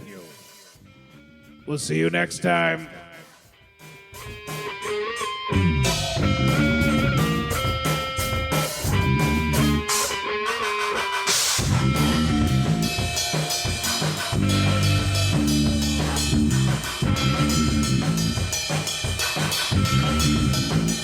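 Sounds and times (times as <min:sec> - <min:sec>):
bass: 0:00.8 - 0:02.5, 0:05.5 - 0:10.2, 0:11.6 - 0:21.0
guitar: 0:00.8 - 0:21.0
drum kit beat: 0:03.0 - 0:21.0.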